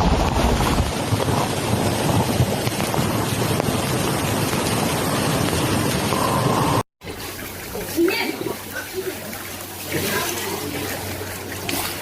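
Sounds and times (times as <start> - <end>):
wind buffeting microphone: 0.0 - 6.2
floodwater rushing: 0.0 - 12.0.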